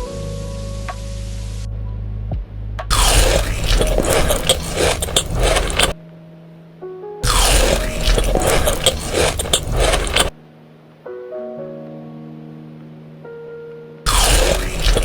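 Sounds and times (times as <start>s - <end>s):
rough scraping crunching noise: 2.9s - 6.0s, 7.2s - 10.4s, 14.1s - 15.0s
soft piano-like notes: 10.4s - 14.1s.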